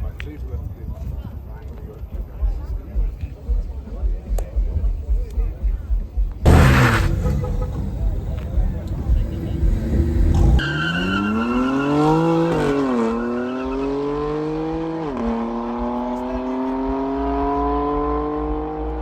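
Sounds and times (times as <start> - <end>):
car engine accelerating hard: 6.4 - 19.0.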